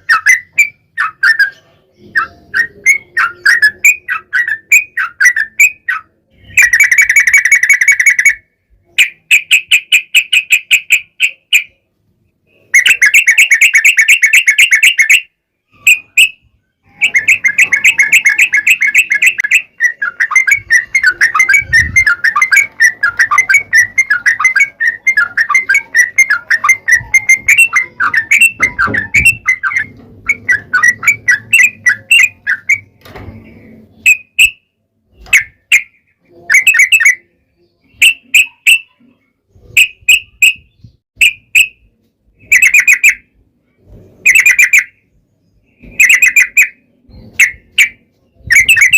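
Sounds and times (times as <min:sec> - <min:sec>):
bird singing fast trills: 0:00.0 - 0:11.9, 0:12.5 - 0:33.0, 0:35.2 - 0:39.0, 0:44.2 - 0:48.9
bird bubbling chatter: 0:16.9 - 0:32.9.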